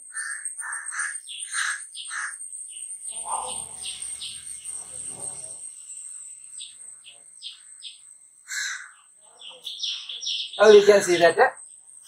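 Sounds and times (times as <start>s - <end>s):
birds chirping: 0.0s - 12.0s
steady high-pitched whine: 2.4s - 8.5s.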